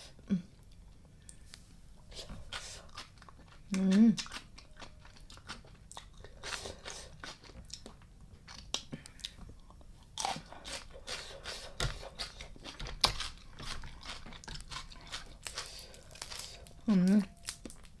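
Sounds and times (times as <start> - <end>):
chewing and crunching: 0.6 - 18.0.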